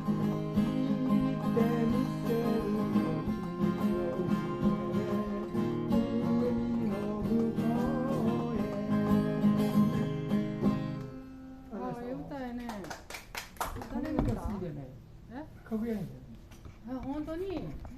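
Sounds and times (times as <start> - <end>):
acoustic guitar chords: 0.0 - 11.8.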